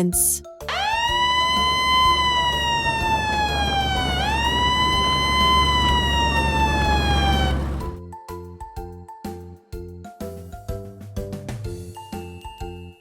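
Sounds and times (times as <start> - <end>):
ambulance siren wailing: 0.7 - 8.0
steady low rumble: 0.7 - 8.0.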